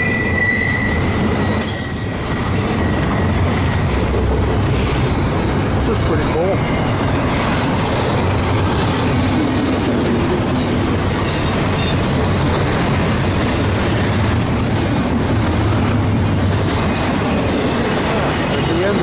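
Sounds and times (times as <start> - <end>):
high wheel squeal: 0.0 - 3.6, 10.2 - 12.1
train wheels rumbling on rail: 0.0 - 19.0.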